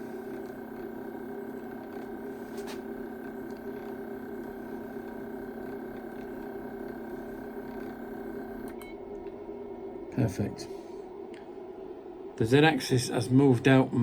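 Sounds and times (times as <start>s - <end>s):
stepper motor whine: 0.0s - 8.9s.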